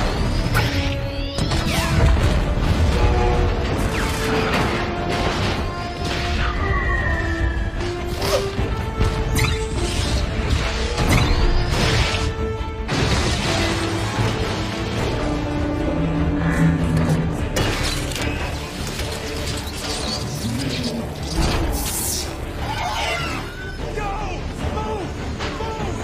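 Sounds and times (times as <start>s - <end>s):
dramatic orchestral score: 0.0s - 26.0s
robot mechanical whirring and whines: 16.6s - 23.8s.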